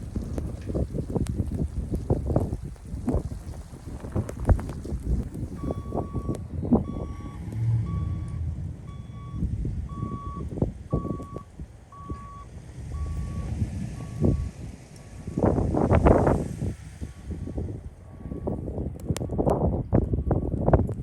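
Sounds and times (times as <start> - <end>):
wind buffeting microphone: 0.0 - 21.0
reversing alarm beeping: 5.6 - 14.6.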